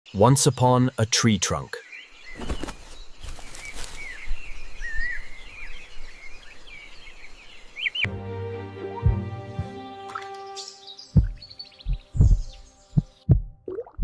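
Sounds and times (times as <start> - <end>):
birds chirping and whistling: 1.9 - 8.1, 9.6 - 13.4
music: 8.1 - 13.7.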